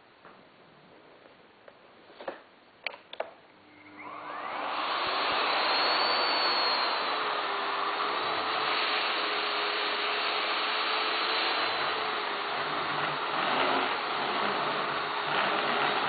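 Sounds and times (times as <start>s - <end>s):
vacuum cleaner running: 3.6s - 16.0s.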